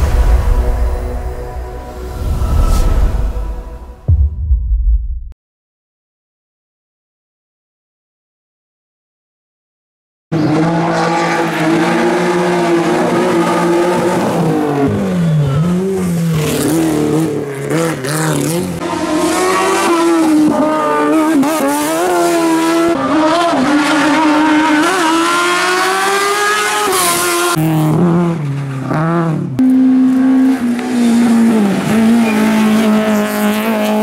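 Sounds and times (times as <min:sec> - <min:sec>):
race car engine revving: 0:10.4 - 0:34.0.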